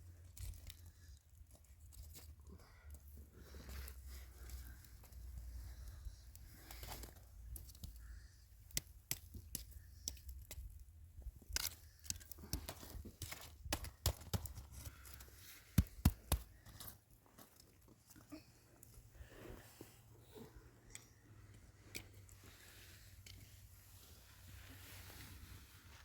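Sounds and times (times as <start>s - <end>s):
sharp cracks and snaps: 6.3s - 10.8s, 11.4s - 17.0s.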